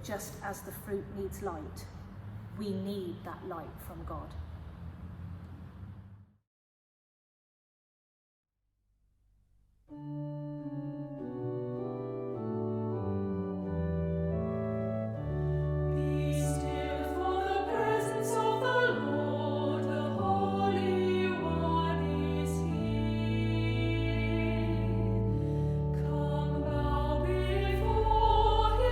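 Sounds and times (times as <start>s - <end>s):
organ playing slow chords: 9.9s - 28.9s.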